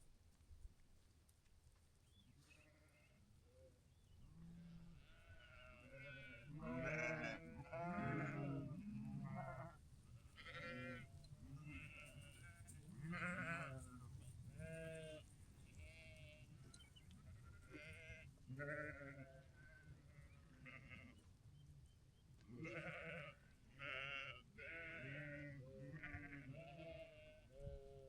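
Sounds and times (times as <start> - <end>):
sheep bleating: 4.4 - 21.2, 22.5 - 28.0.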